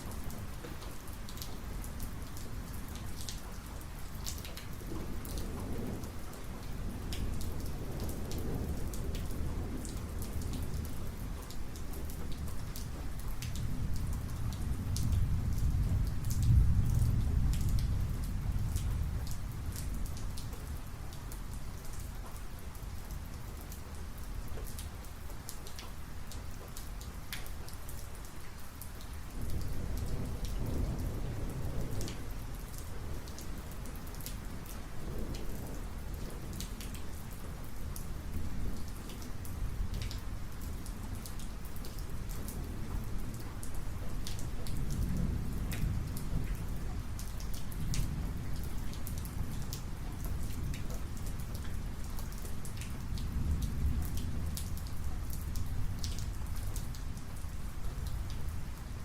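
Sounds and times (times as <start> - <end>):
rain falling: 0.0 - 59.0
thunder rumbling: 4.8 - 11.3, 13.0 - 20.8, 29.3 - 36.9, 44.0 - 52.1.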